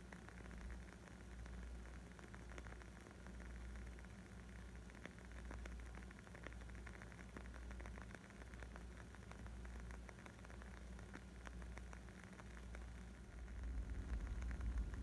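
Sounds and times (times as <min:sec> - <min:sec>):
fire low rumble: 0:04.5 - 0:15.0.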